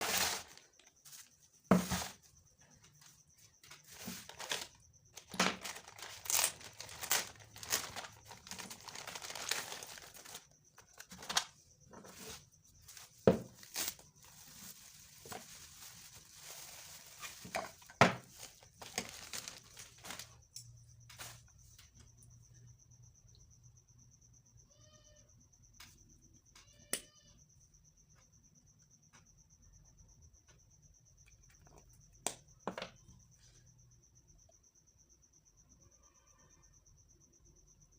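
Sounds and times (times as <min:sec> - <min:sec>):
packaging crinkling and tearing: 0:04.2 - 0:11.5, 0:18.4 - 0:20.4.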